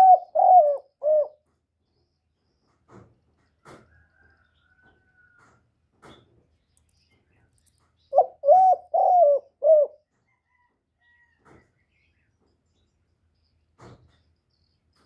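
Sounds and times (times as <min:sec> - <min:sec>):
dove cooing: 0:00.0 - 0:01.4, 0:08.1 - 0:10.1.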